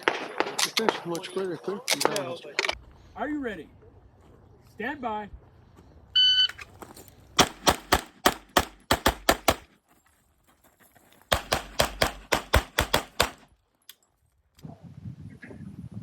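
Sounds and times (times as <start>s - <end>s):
rapid handgun fire: 7.4s - 9.7s, 11.3s - 13.5s.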